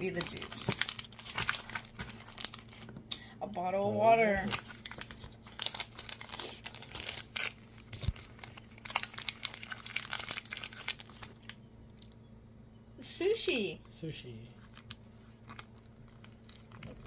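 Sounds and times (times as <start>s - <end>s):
plastic bag crinkling and tearing: 0.0s - 2.9s, 4.4s - 11.6s, 14.6s - 17.0s.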